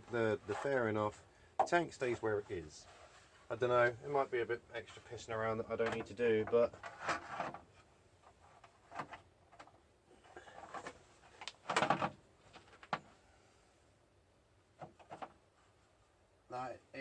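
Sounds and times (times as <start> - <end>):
rustling scrape: 0.0 - 1.2, 2.0 - 3.6, 6.8 - 9.2.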